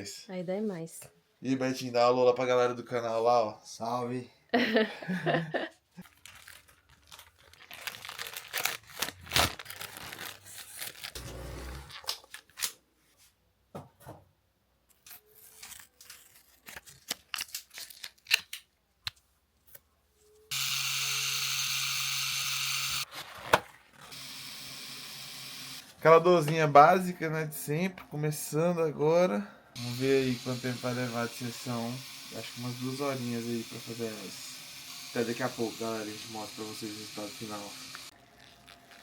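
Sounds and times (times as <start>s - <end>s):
hands rustling and crinkling material: 6.0s - 11.2s
tattoo machine buzzing: 20.5s - 23.0s, 24.1s - 25.8s, 29.8s - 39.0s.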